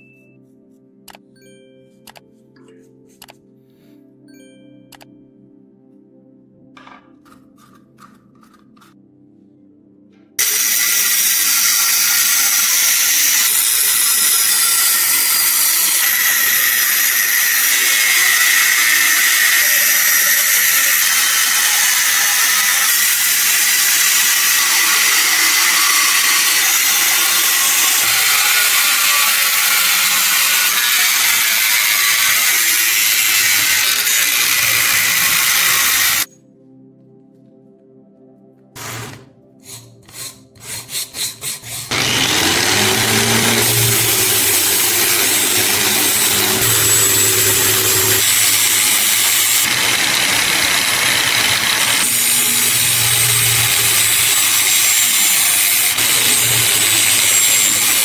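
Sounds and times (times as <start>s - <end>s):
power tool grinding steel: 10.4s - 36.3s, 38.8s - 58.0s.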